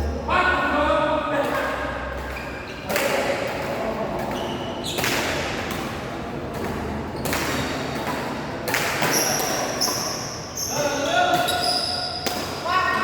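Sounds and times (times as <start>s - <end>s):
rackets hitting shuttlecock: 1.4s - 12.7s
shoe squeak: 2.2s - 2.9s, 4.4s - 5.4s, 9.0s - 12.3s.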